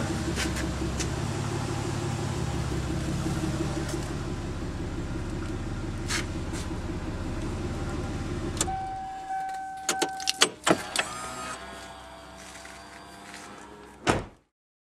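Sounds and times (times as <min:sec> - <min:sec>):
car engine idling: 0:00.0 - 0:13.9
electronic beep: 0:08.7 - 0:10.4.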